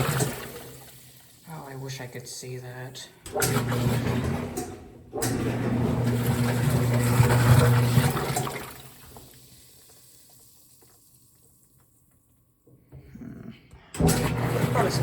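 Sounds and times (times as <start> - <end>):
water churning and sloshing: 0.0 - 1.7, 3.2 - 9.5, 14.0 - 15.0
washing machine motor humming: 0.0 - 10.3, 13.8 - 15.0.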